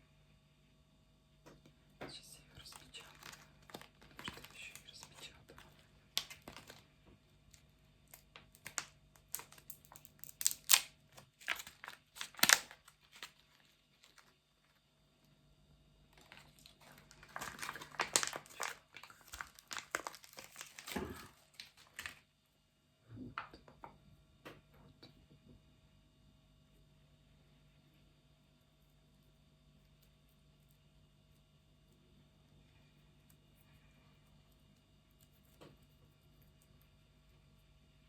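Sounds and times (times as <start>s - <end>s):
crinkly scratchy handling strokes: 2.6s - 14.7s, 16.2s - 22.2s.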